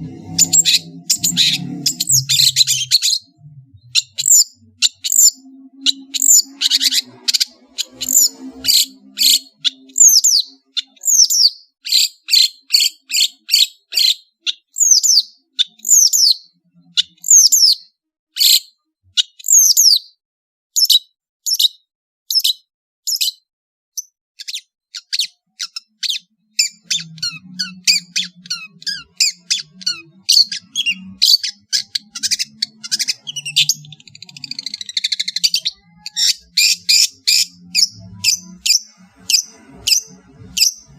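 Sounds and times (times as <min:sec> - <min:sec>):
bird singing sharp high notes: 0:00.0 - 0:14.2, 0:25.6 - 0:40.9.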